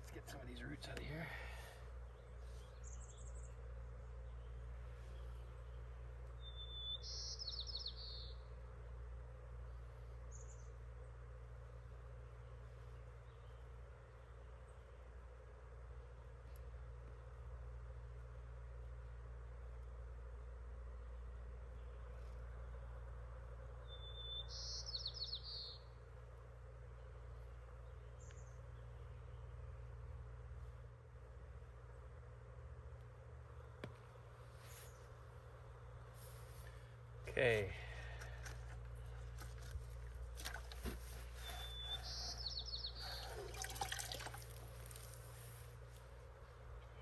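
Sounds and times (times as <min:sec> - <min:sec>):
bird chirp: 0:00.0 - 0:08.6, 0:10.2 - 0:10.8, 0:23.8 - 0:26.0, 0:40.4 - 0:45.1
songbird singing trill: 0:00.0 - 0:08.6, 0:10.3 - 0:10.8, 0:23.8 - 0:26.0, 0:40.4 - 0:45.1
songbird singing: 0:00.0 - 0:32.2, 0:33.0 - 0:47.0
low background hum: 0:00.0 - 0:47.0
faint clicks and rustles: 0:38.0 - 0:42.0.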